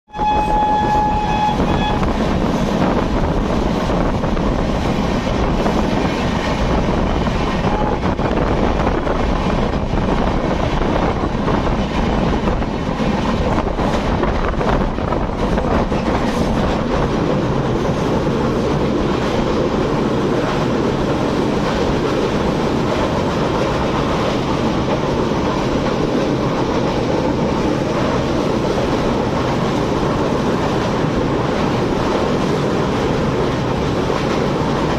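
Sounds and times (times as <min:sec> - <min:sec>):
train horn: 0:00.1 - 0:02.6, 0:07.6 - 0:08.2
train passing at high speed: 0:00.1 - 0:34.9.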